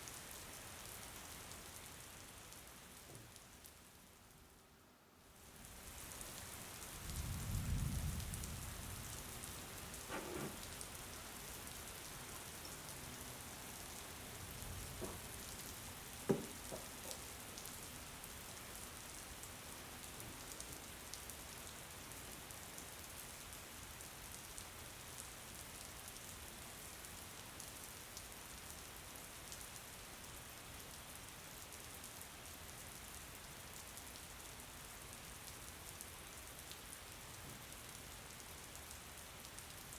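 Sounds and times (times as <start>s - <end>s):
steady rain falling: 0.0s - 39.9s
short knocks: 16.3s - 17.2s.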